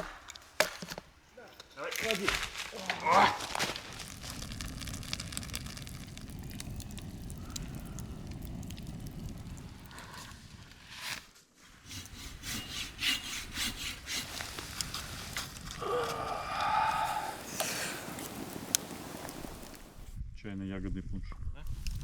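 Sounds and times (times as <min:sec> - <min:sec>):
hand saw rasping through wood: 0:11.8 - 0:15.2.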